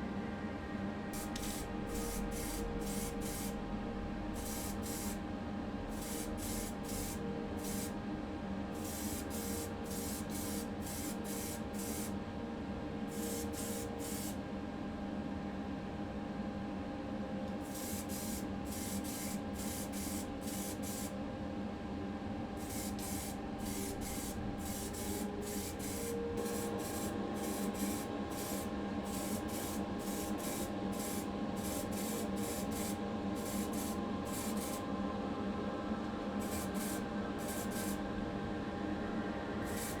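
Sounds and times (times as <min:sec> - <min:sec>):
low mechanical hum: 0:00.0 - 0:40.0
paint spray hissing bursts: 0:01.2 - 0:03.6, 0:04.4 - 0:05.2, 0:06.0 - 0:07.9, 0:08.8 - 0:12.1, 0:13.2 - 0:14.4, 0:17.7 - 0:21.1, 0:22.6 - 0:34.8, 0:36.4 - 0:38.0, 0:39.7 - 0:40.0.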